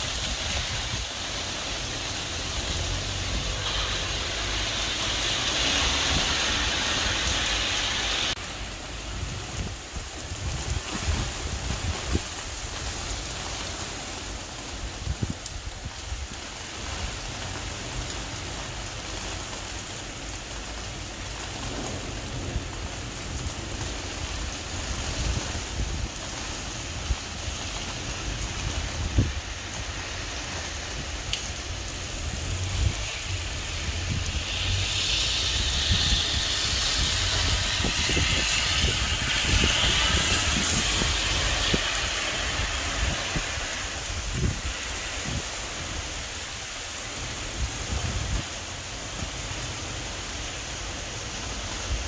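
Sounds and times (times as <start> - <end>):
wind on microphone: 0.0 - 8.4, 9.2 - 13.2, 21.6 - 49.3
heavy rain on street: 0.0 - 52.0.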